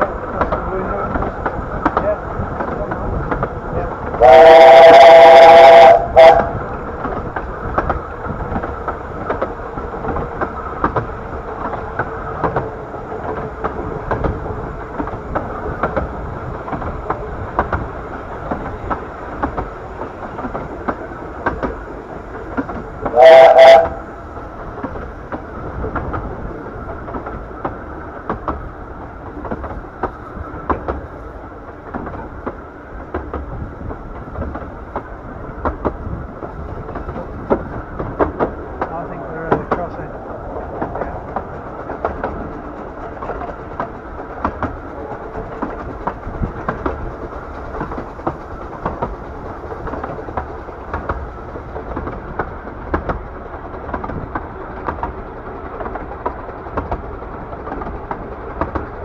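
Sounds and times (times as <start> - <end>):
train rumbling on rails: 0.0 - 59.0
steam locomotive whistle: 4.1 - 7.0, 23.0 - 24.4.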